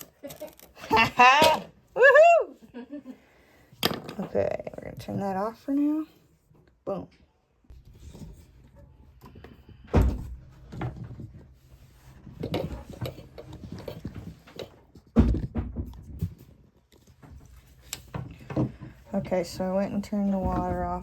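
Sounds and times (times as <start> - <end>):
objects knocking and clattering: 3.7 - 5.3, 7.7 - 21.0.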